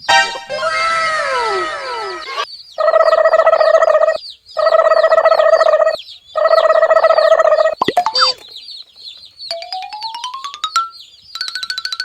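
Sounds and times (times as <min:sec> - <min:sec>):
buzzy tone: 0:00.0 - 0:02.5
rising ratcheting whistle: 0:00.0 - 0:02.5
sliding whistle: 0:00.0 - 0:02.5
baby chicks peeping: 0:00.0 - 0:09.6, 0:10.9 - 0:11.4.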